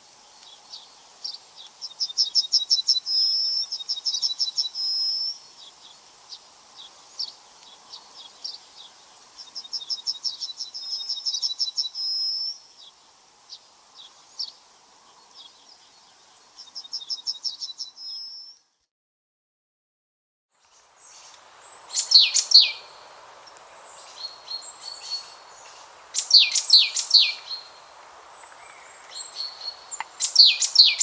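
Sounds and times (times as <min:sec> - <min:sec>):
songbird trilling and whistling: 0:21.9 - 0:22.9, 0:24.2 - 0:27.7, 0:28.6 - 0:31.0.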